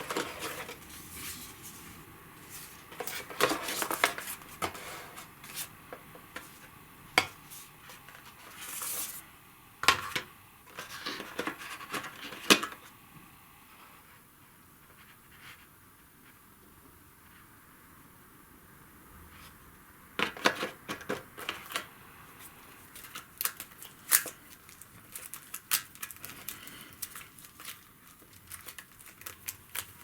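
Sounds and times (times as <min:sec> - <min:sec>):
packaging rustling: 0:00.0 - 0:06.8, 0:22.7 - 0:30.0.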